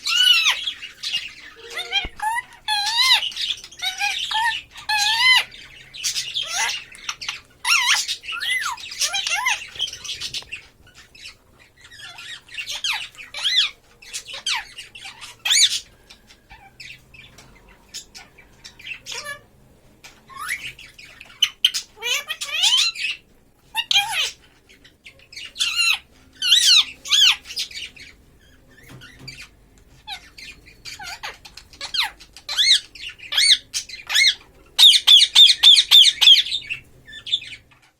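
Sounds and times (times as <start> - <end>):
parrot squawking and chattering: 0.0 - 37.9.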